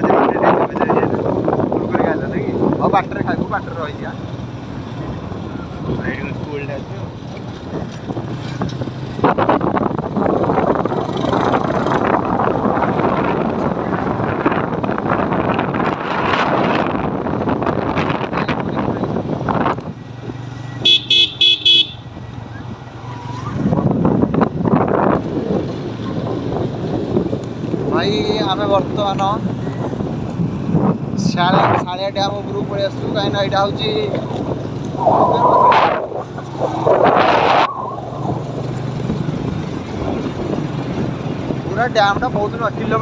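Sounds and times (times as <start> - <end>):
wind buffeting microphone: 0.0 - 3.9, 5.0 - 20.5, 22.5 - 43.0
motorcycle engine humming: 18.7 - 31.1
vehicle horn beeps: 20.8 - 22.1.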